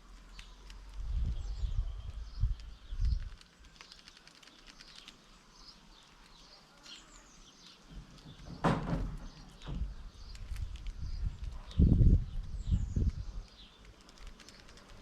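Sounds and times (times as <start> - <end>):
small birds chirping: 0.0 - 15.0
loud thump: 8.5 - 10.0.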